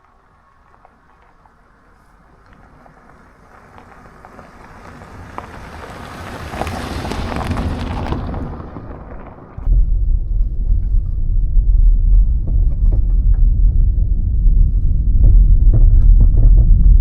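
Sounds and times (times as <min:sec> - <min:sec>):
vehicle driving past: 0:00.3 - 0:15.0
sudden low rumble: 0:04.8 - 0:17.0.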